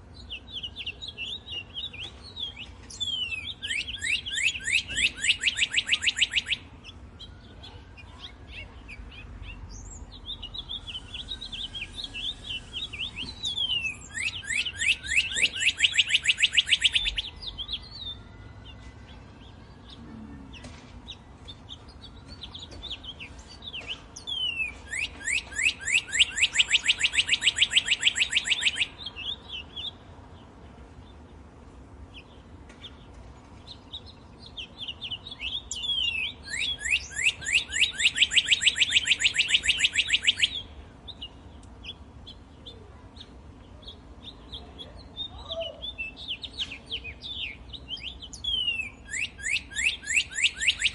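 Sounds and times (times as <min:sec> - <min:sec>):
fast bird trill: 0:00.3 - 0:18.2, 0:21.8 - 0:30.0, 0:34.6 - 0:40.8, 0:45.1 - 0:50.9.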